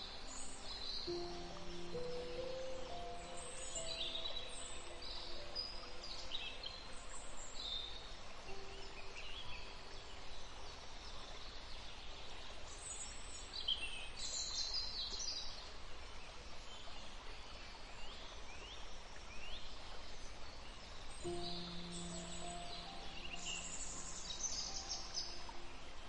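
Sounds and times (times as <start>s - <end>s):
birds chirping: 0.0s - 9.8s, 21.2s - 26.0s
steady hiss: 0.0s - 26.0s.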